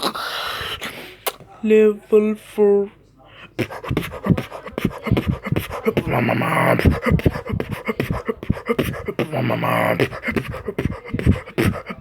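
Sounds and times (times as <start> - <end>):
beatboxing: 3.6 - 12.0.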